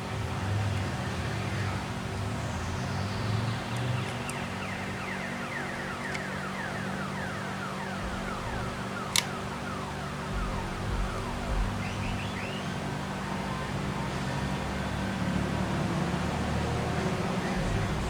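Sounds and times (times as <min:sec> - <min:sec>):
steady hum: 0:04.4 - 0:15.2, 0:16.8 - 0:18.0
sharp click: 0:09.1 - 0:09.4.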